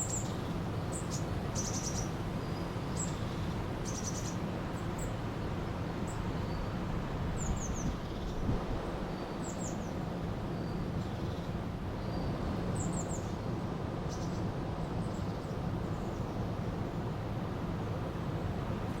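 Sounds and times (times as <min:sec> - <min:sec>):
small birds chirping: 0:00.0 - 0:05.2.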